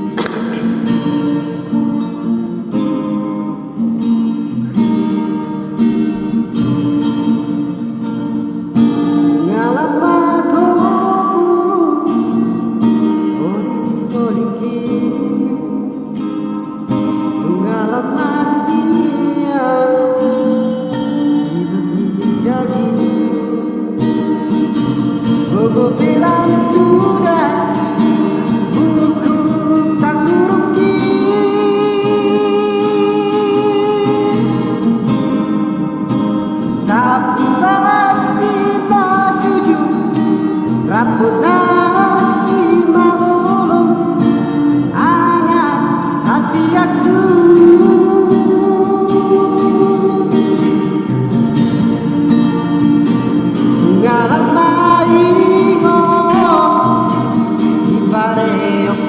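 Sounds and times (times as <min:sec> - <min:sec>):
guitar accompaniment: 0:00.0 - 0:59.0
person singing with vibrato: 0:00.0 - 0:59.0.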